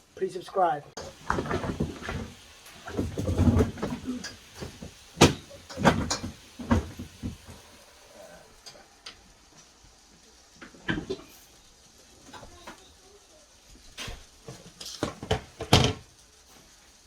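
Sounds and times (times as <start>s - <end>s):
hard objects knocking: 1.0s - 7.6s, 14.9s - 16.0s.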